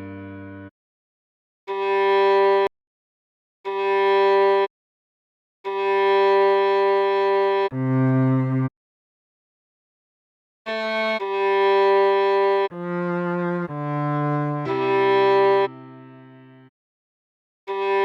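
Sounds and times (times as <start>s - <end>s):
viola playing slow melody: 0.0s - 0.7s, 1.7s - 2.7s, 3.7s - 4.7s, 5.7s - 8.7s, 10.7s - 16.7s, 17.7s - 18.0s.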